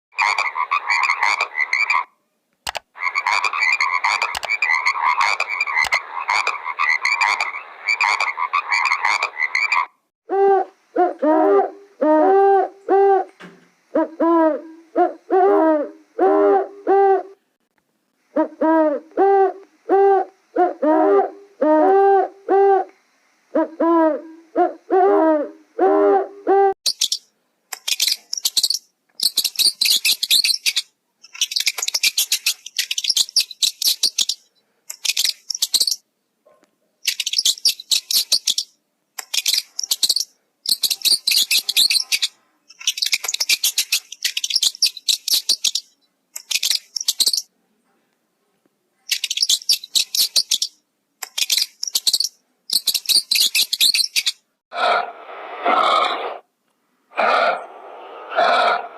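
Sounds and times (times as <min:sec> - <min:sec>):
bird chattering chirps: 0:00.2 - 0:02.1, 0:03.0 - 0:09.9, 0:26.8 - 0:36.0, 0:37.0 - 0:47.5, 0:49.1 - 0:54.4.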